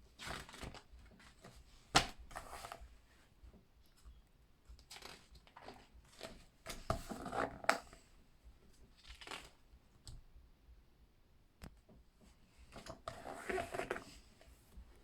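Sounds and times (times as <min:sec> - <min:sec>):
book pages turning: 0:00.2 - 0:02.8, 0:04.8 - 0:07.8, 0:09.0 - 0:09.6.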